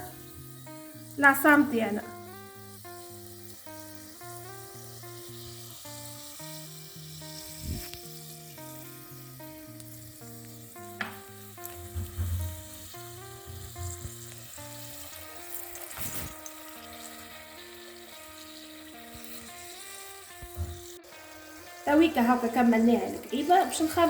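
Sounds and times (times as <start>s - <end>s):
dough sizzling in hot oil: 0.0s - 24.0s
dull knocks: 11.8s - 12.6s.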